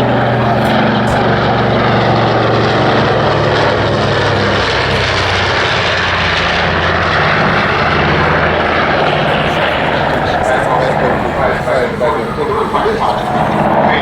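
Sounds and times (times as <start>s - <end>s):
aircraft droning past: 0.0s - 14.0s.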